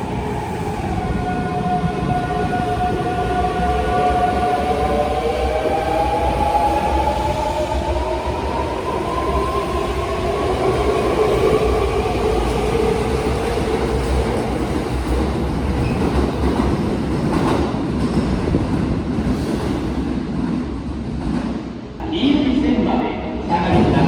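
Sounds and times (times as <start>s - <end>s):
clickety-clack over rail joints: 13.2s - 22.0s.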